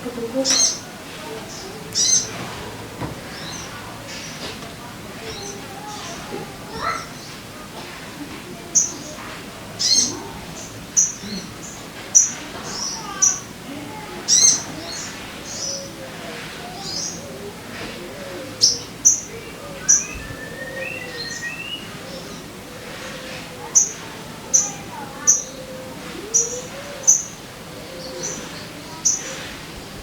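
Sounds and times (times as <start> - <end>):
lower whistled bird notes: 19.1 - 22.4
bird sharp high chirps: 19.8 - 21.9.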